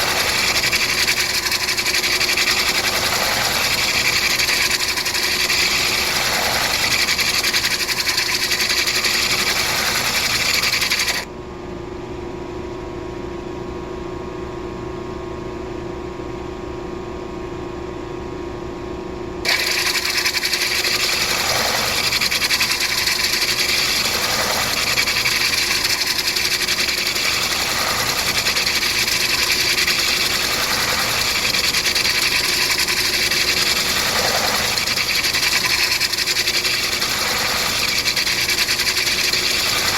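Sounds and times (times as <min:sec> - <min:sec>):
grinder motor hum: 0:00.0 - 0:11.3, 0:19.4 - 0:39.9
stone grinding on wheel: 0:00.0 - 0:11.3, 0:19.5 - 0:39.9.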